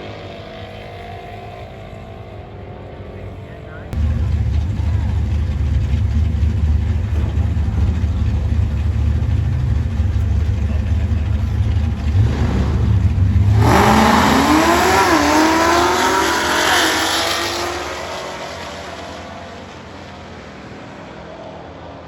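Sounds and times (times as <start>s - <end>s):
drag car engine launching: 4.0s - 19.9s.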